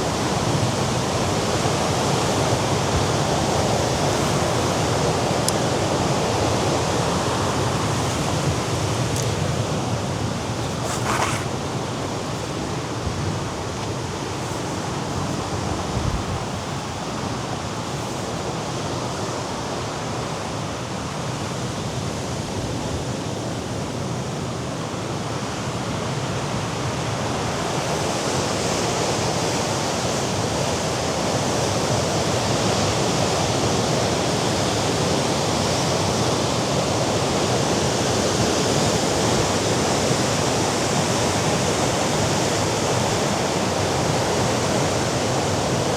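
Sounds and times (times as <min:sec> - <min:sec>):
surf washing against rocks: 0:00.0 - 0:20.4
wind: 0:00.0 - 0:45.9.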